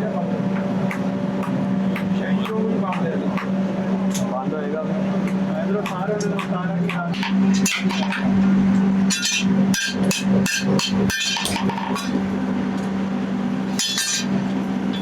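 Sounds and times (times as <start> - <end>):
steady low hum: 0.0 - 15.0
hammer striking steel: 5.3 - 8.4, 9.1 - 12.3, 13.7 - 15.0.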